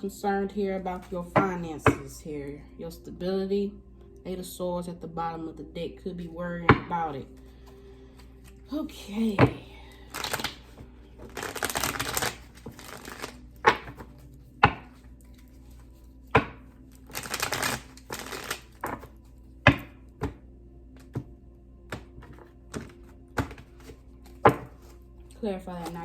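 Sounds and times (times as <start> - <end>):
cards shuffling: 10.0 - 20.4, 21.9 - 25.0, 25.6 - 26.0
cards slapping on table: 10.2 - 14.9.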